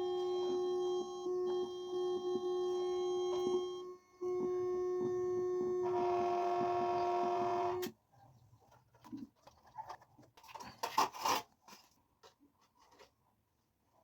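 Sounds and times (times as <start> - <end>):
electronic tone from speaker: 0.0 - 7.8.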